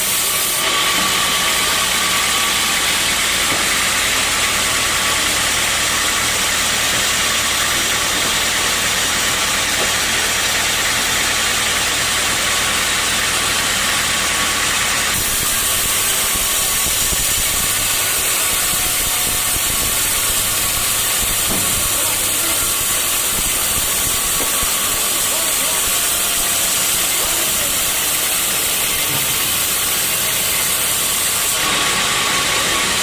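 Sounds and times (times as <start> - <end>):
sawmill machinery rushing: 0.0 - 33.0.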